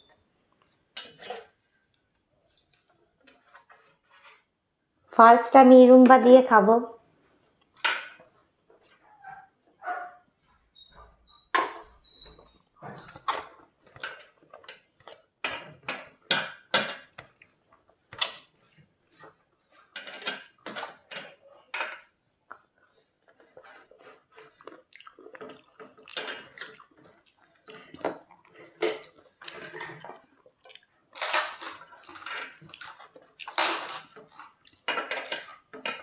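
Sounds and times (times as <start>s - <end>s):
chewing and mouth sounds: 22.5s - 30.9s.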